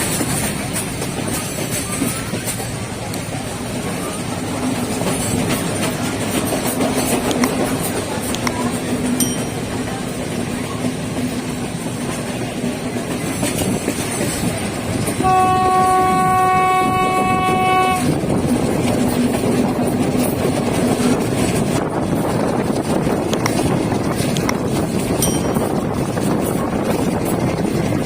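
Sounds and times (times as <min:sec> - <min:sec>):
train rumbling: 0:00.0 - 0:28.0
train horn: 0:15.1 - 0:18.3.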